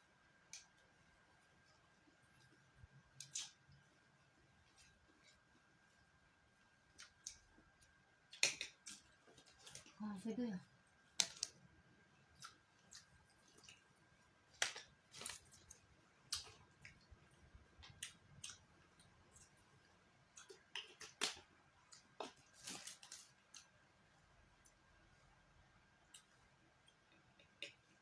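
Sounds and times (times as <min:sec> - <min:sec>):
chewing food: 0:10.9 - 0:24.9.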